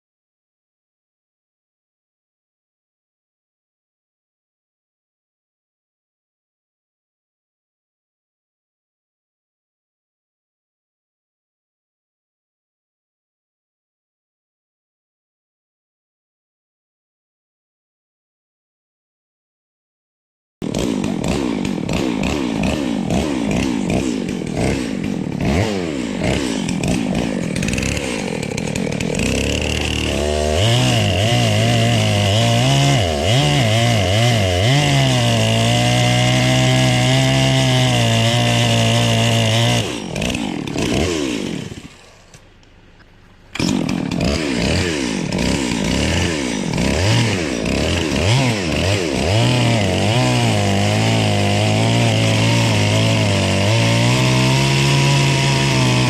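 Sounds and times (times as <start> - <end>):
chainsaw revving: 20.6 - 42.7, 43.3 - 56.0.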